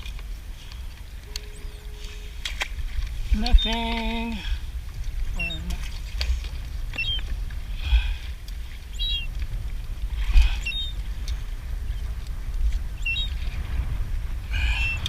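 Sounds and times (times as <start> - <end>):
water moving around kayak: 0.0 - 15.0
wind rumble on microphone: 0.0 - 15.0
water sloshing: 1.0 - 11.6
bird chirping: 1.3 - 2.5, 5.3 - 5.7, 7.0 - 7.3, 8.9 - 9.3, 10.6 - 11.0, 13.0 - 13.4.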